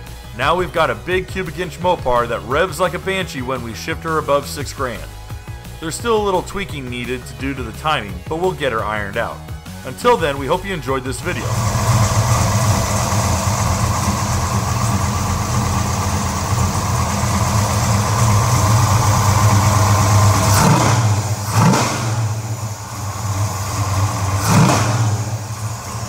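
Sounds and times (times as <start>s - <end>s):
car engine idling: 0.0s - 6.8s, 10.2s - 26.0s
engine revving in throttle blips: 11.2s - 26.0s.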